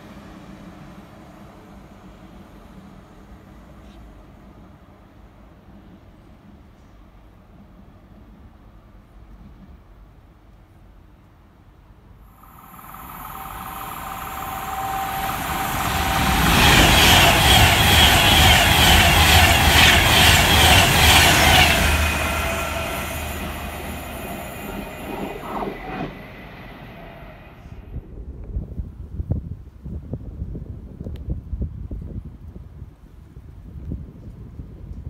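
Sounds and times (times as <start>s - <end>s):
express train passing: 0.0s - 10.4s, 12.3s - 28.6s.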